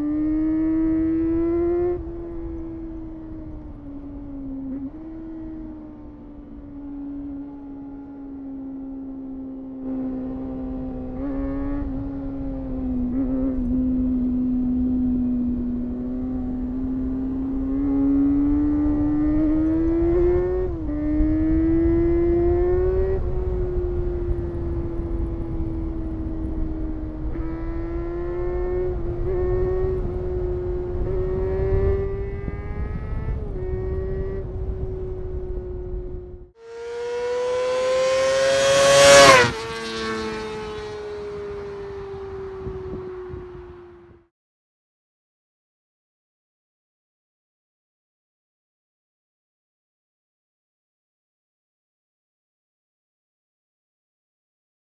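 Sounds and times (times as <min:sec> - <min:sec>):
motorcycle engine at high revs: 0:00.0 - 0:08.1, 0:09.3 - 0:36.0, 0:36.6 - 0:44.2.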